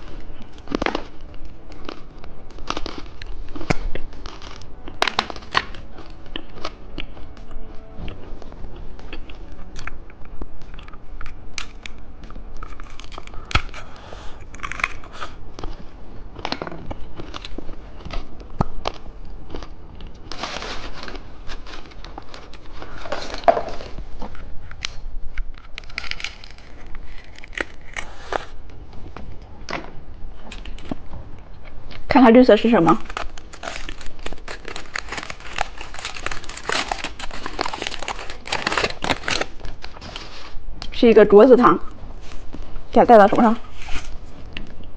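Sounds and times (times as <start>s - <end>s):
candy wrapper crinkling and tearing: 0.2s - 7.3s, 10.7s - 15.8s, 16.4s - 28.6s, 32.0s - 40.6s.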